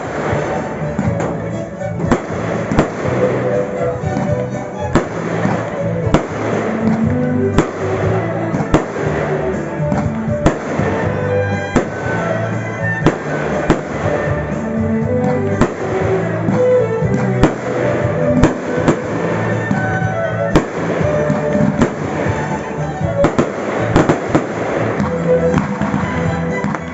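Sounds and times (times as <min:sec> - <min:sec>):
fireworks bangs: 0:00.0 - 0:26.9
music with sustained notes: 0:00.0 - 0:26.9.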